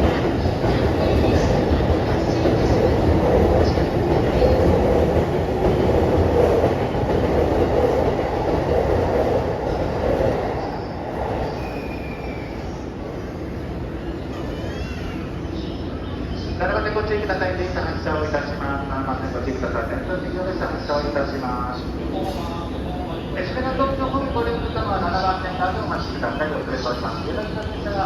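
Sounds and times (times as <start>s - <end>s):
train wheels rumbling on rails: 0.0s - 13.8s.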